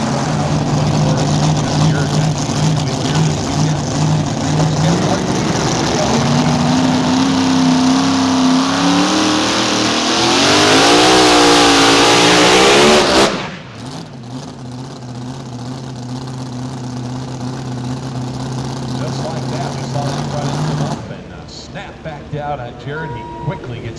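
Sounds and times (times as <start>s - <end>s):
low steady engine note: 0.0s - 7.0s, 13.6s - 23.9s
tractor engine running flat out: 0.0s - 8.5s.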